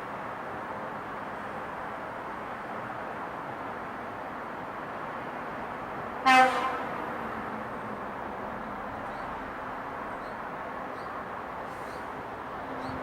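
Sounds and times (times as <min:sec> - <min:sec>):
vehicle horn toot: 0:06.3 - 0:06.8.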